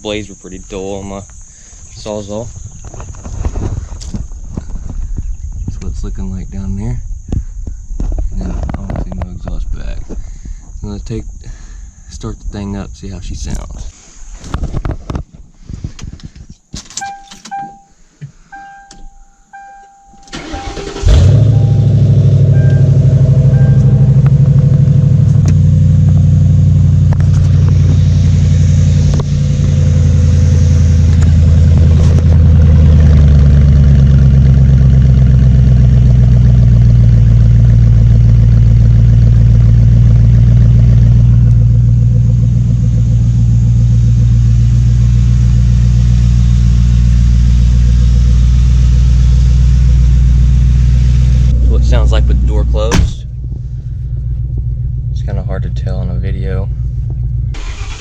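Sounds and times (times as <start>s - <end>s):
dashboard chime tones: 17.0s - 18.0s, 18.6s - 24.4s
engine cranking: 20.2s - 25.6s, 57.5s - 58.0s
car engine idling with loud rumble: 20.3s - 58.0s.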